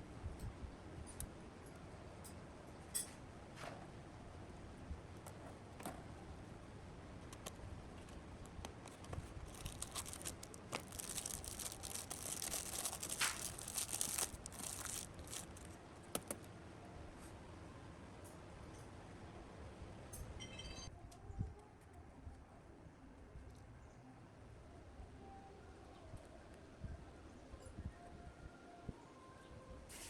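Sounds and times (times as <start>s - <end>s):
scratchy rustling: 8.0s - 15.7s.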